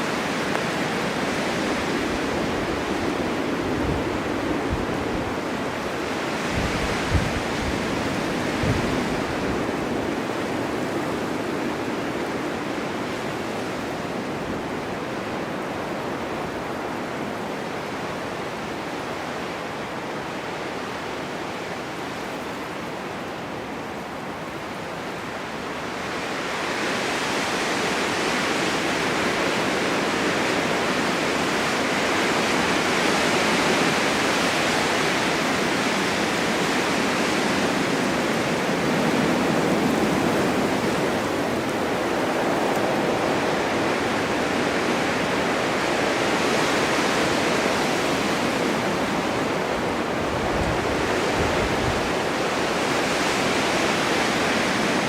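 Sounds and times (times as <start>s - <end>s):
wind buffeting microphone: 0.0s - 15.1s, 31.5s - 55.0s
blizzard wind rushing: 0.0s - 19.3s, 24.2s - 55.0s.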